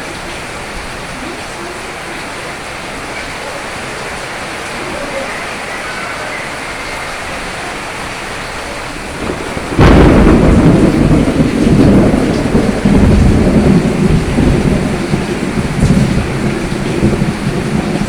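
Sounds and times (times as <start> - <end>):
heavy rain: 0.0 - 18.0
thunder crack and rumble: 6.7 - 18.0.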